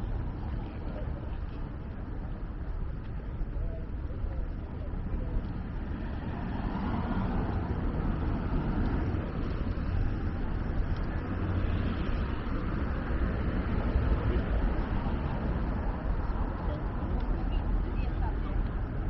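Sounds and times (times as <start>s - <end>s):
cars passing: 5.2s - 19.0s.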